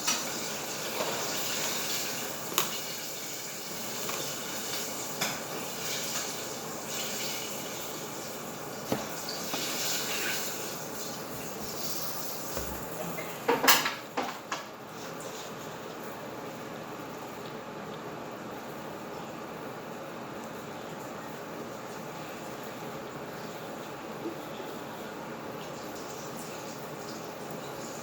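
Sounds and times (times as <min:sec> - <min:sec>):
cooking hiss: 0:00.0 - 0:13.6.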